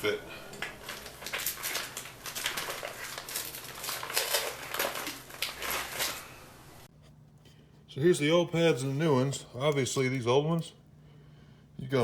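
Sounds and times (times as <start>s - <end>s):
packaging crinkling and rustling: 0.6s - 6.8s.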